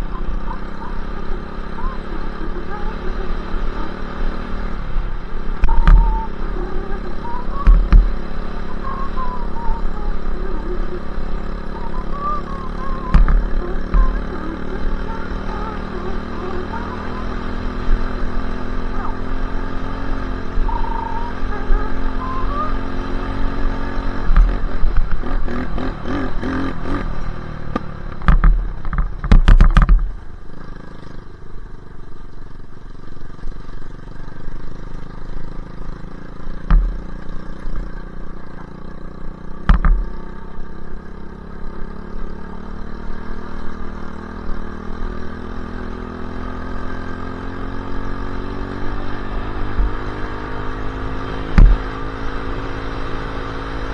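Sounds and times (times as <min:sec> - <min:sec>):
dirt bike engine running: 0:00.0 - 0:53.9
rattling and loud knocks: 0:27.7 - 0:30.3, 0:36.6 - 0:37.9, 0:39.6 - 0:40.4, 0:51.5 - 0:52.0.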